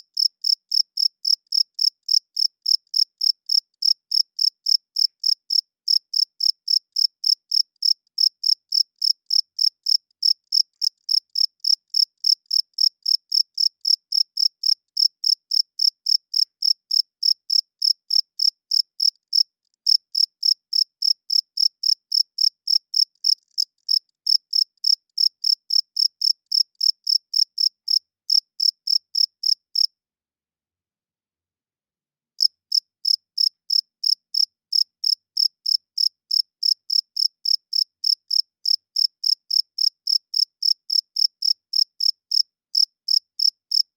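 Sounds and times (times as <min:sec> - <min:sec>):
cricket chirping: 0:00.2 - 0:29.9, 0:32.4 - 0:43.8.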